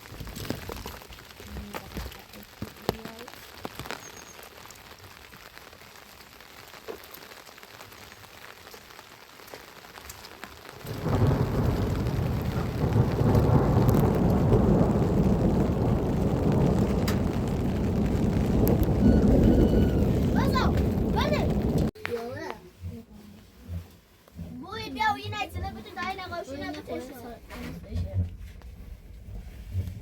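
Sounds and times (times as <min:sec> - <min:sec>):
rain falling: 0:00.0 - 0:22.0
loud steady rumbling noise: 0:11.6 - 0:21.9.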